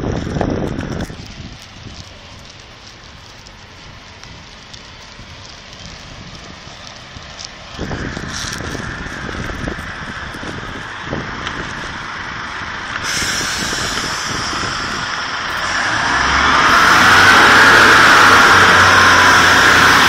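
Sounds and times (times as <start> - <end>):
train diesel engine: 7.5 - 20.0.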